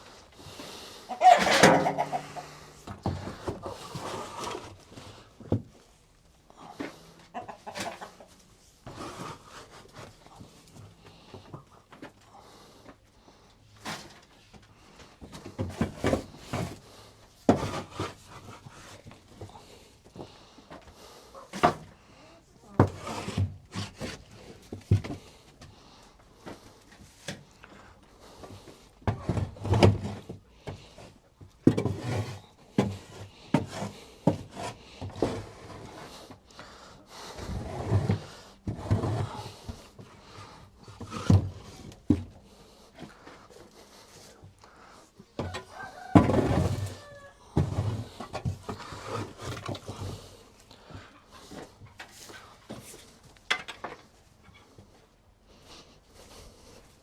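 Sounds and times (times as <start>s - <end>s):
shovel scraping and knocking wood: 1.2s - 5.8s, 13.8s - 14.3s, 15.3s - 19.5s, 22.8s - 25.3s, 31.6s - 36.4s, 37.4s - 44.1s, 45.4s - 50.4s.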